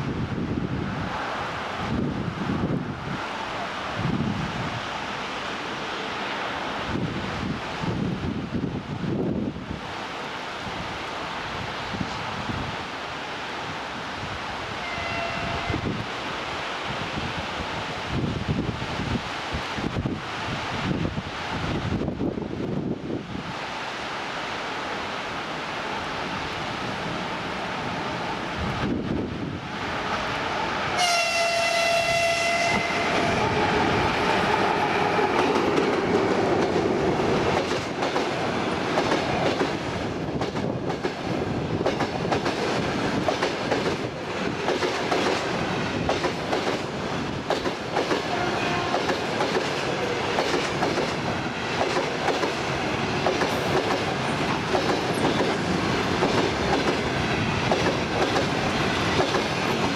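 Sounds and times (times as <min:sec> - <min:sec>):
locomotive horn: 0:14.8 - 0:16.0, 0:31.0 - 0:33.5, 0:48.3 - 0:49.1
train wheels clattering over rail joints: 0:35.2 - 0:59.9.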